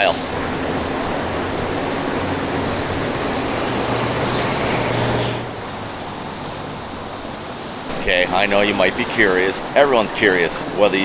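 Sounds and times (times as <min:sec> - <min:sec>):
vehicle passing: 0:00.0 - 0:11.0.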